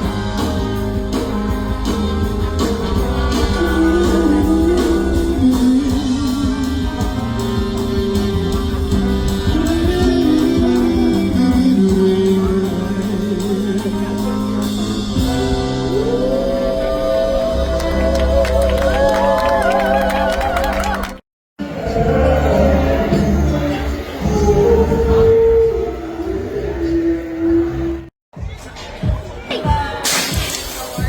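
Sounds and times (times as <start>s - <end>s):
music with guitar bass and beat: 0.0s - 16.1s.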